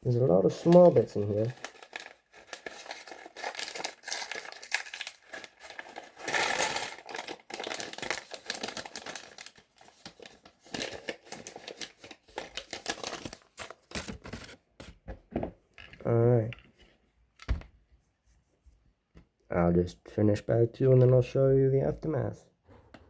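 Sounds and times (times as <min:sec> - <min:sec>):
plastic bag crinkling: 0:00.5 - 0:14.6.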